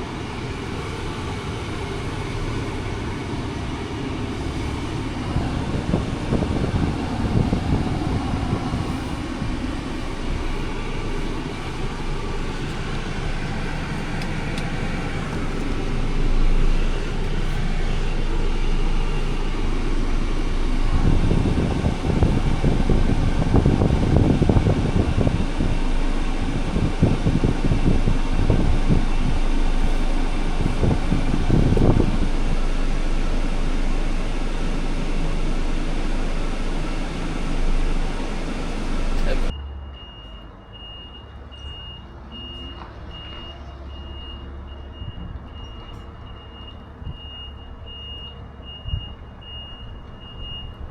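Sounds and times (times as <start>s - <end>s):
truck diesel engine rumbling: 0.0s - 50.9s.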